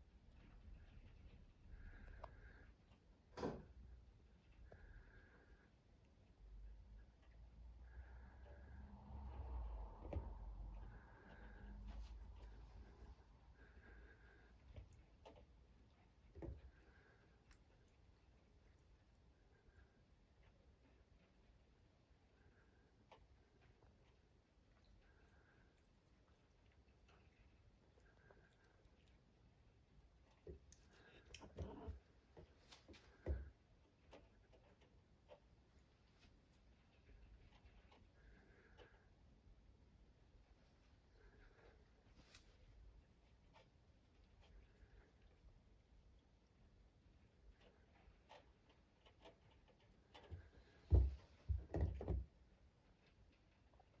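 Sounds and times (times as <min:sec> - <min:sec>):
soft knocks and light clicks: 0:47.6 - 0:53.6.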